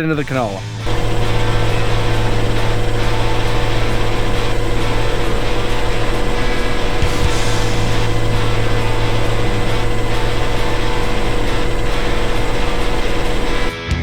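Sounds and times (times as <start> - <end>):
harvester engine droning: 0.0 - 13.7.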